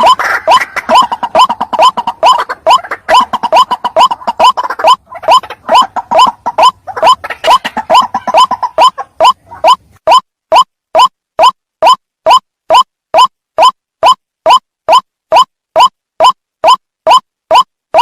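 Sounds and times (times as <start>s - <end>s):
waterhen calling: 0.0s - 9.9s.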